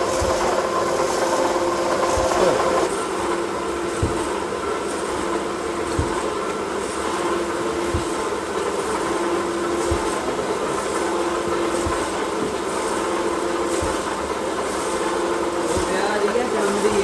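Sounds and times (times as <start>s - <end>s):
machinery humming: 0.0s - 17.0s
soft low machine thump: 3.9s - 4.4s, 5.9s - 6.4s, 7.8s - 8.4s, 9.8s - 10.6s, 11.7s - 12.7s.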